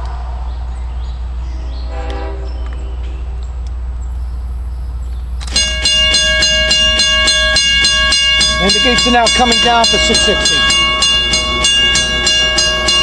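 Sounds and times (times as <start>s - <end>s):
distant diesel locomotive horn: 0.0s - 4.6s, 5.5s - 13.0s
crossing warning bell ringing: 4.1s - 13.0s.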